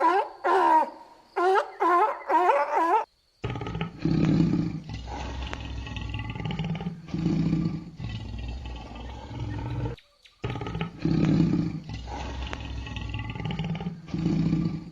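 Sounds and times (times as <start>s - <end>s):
lion roaring: 3.4s - 14.9s.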